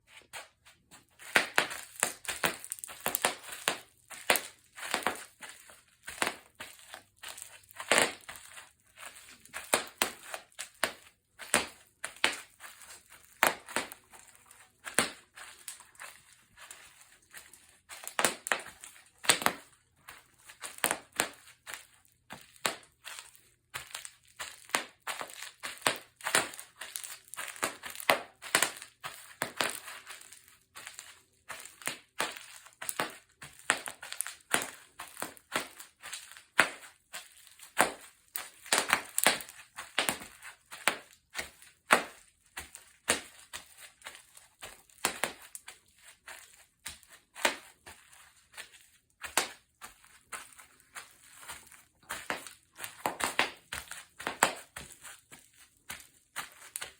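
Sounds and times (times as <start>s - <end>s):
bubble wrap popping: 1.1s - 19.8s, 20.4s - 56.9s.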